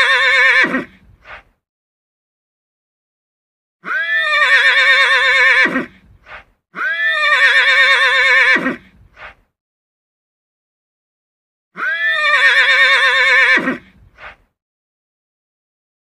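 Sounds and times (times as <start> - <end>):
horse whinnying: 0.0 - 1.0, 3.8 - 6.0, 6.8 - 8.9, 11.8 - 14.0.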